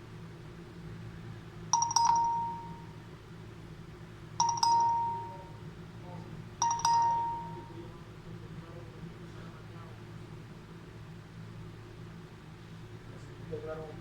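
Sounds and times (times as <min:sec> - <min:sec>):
electronic doorbell chime: 0:01.8 - 0:02.9, 0:04.4 - 0:05.6, 0:06.6 - 0:07.8.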